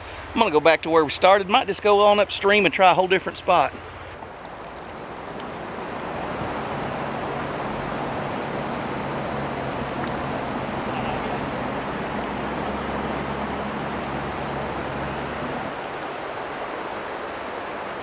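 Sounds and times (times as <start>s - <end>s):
river water rushing: 3.6s - 18.0s.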